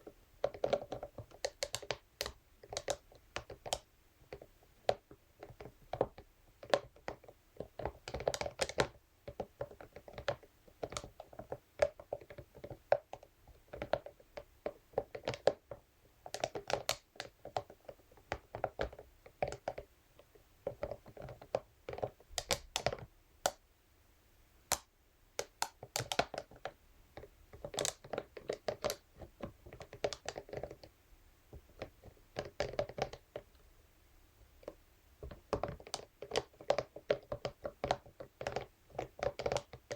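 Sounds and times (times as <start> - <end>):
brush clicking and tapping on surface: 0.4 - 19.9, 24.7 - 30.9, 34.6 - 39.9.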